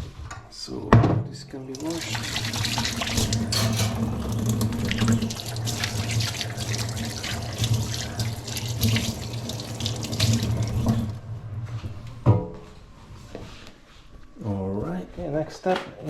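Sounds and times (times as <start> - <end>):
tap running into sink: 1.8 - 11.1
water splashing on chopping board: 1.8 - 11.1.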